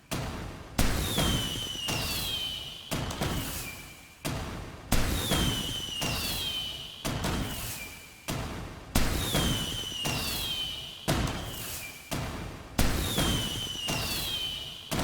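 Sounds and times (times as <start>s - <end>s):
firework whistles gliding down: 1.0s - 3.9s, 5.4s - 7.9s, 9.2s - 12.0s, 13.0s - 15.0s.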